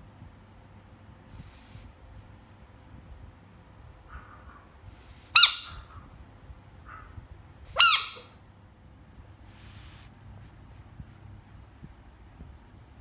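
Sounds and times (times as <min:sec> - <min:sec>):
frog screaming: 0:05.4 - 0:05.8, 0:07.8 - 0:08.2.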